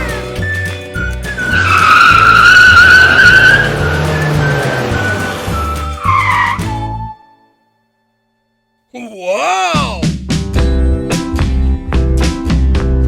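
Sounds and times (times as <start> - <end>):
cartoon tyre screech: 1.4 - 7.2.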